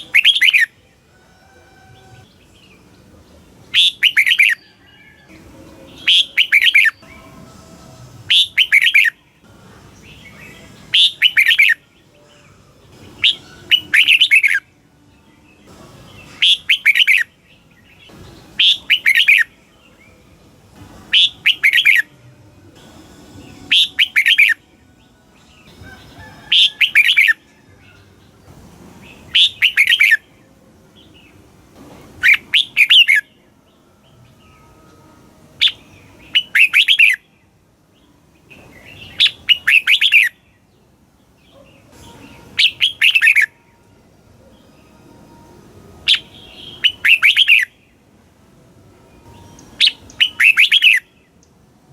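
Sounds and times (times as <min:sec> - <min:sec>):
bulbul singing warbling phrases: 0:00.0 - 0:01.0, 0:02.1 - 0:04.8, 0:05.4 - 0:07.7, 0:08.3 - 0:22.2, 0:22.8 - 0:28.4, 0:29.1 - 0:31.4, 0:32.2 - 0:33.5, 0:35.6 - 0:37.4, 0:38.0 - 0:40.7, 0:41.5 - 0:43.8, 0:46.0 - 0:48.0, 0:49.2 - 0:51.6.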